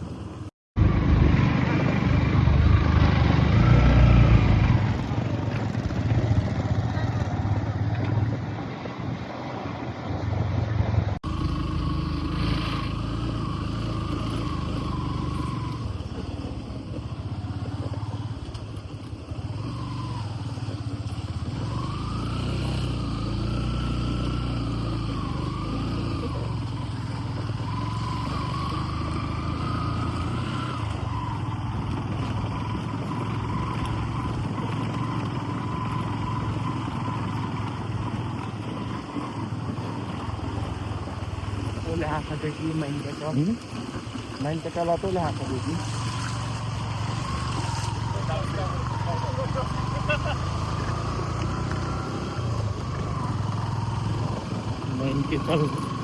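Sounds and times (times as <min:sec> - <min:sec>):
road noise: 0:00.0 - 0:56.0
vehicle engine running: 0:00.0 - 0:56.0.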